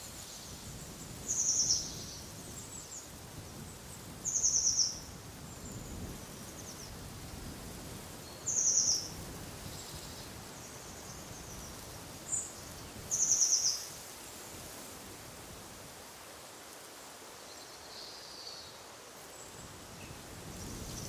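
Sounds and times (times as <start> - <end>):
wind noise: 19.6 - 21.0.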